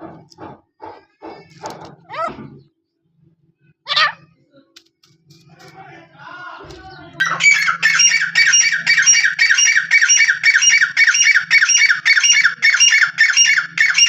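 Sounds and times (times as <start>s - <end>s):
francolin calling shrilly: 7.2s - 14.0s.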